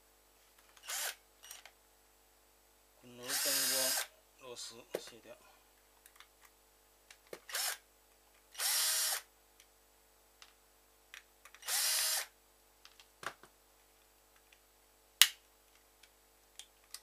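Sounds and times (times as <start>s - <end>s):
electric screwdriver whining: 0.8s - 1.6s, 3.3s - 4.1s, 7.5s - 7.8s, 8.6s - 9.3s, 11.6s - 12.3s.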